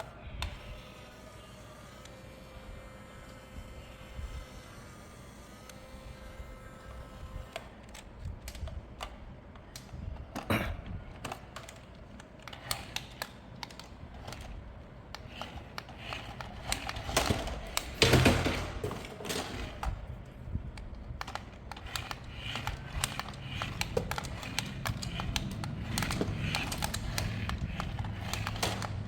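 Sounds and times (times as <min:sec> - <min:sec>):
plastic toy clicks and taps: 0:20.8 - 0:29.0.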